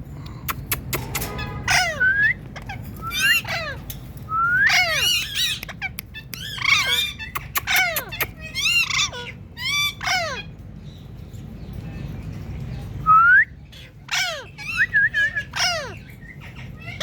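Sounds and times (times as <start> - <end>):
parakeet squawking: 0.5 - 3.8, 4.7 - 10.5, 13.7 - 17.0.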